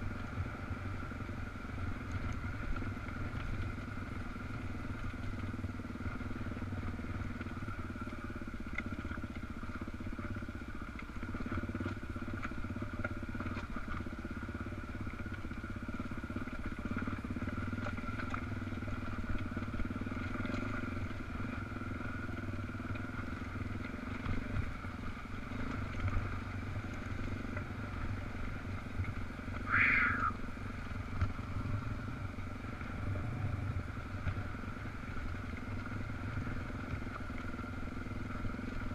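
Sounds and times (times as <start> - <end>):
motorcycle engine running: 0.0 - 38.9
short high squeal: 29.7 - 30.4.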